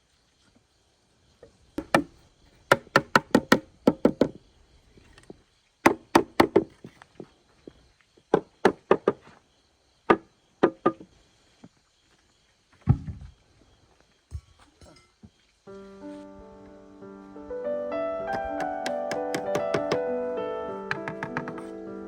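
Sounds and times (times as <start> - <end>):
tool knocking on wood: 1.8 - 2.1, 2.7 - 4.4, 18.3 - 20.0, 20.9 - 21.7.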